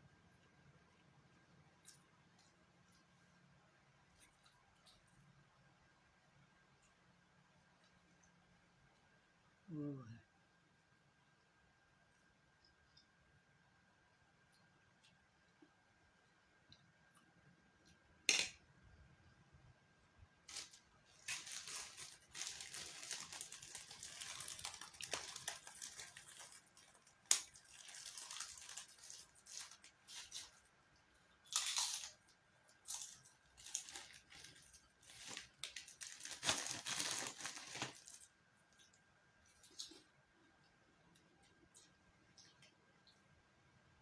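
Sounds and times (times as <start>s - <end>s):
plastic packaging crinkling: 20.4s - 30.7s, 31.5s - 38.4s.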